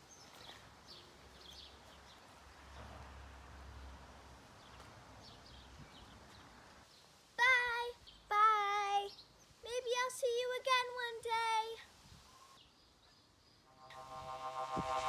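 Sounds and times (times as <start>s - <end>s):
faint bird chirps: 12.1s - 13.7s
low rumble: 13.7s - 15.0s.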